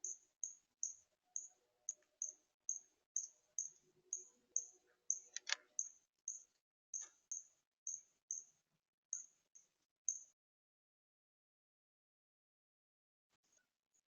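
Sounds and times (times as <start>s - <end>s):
small bird chip notes: 0.0s - 10.4s.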